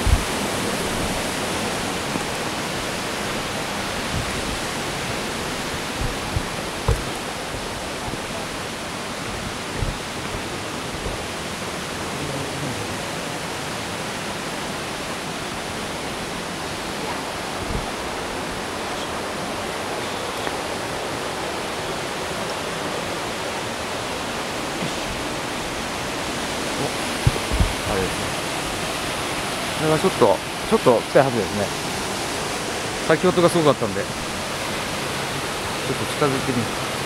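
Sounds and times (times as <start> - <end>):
waterfall rushing: 0.0 - 37.0
soft low thumps: 4.0 - 11.6, 17.6 - 18.7, 26.9 - 28.8.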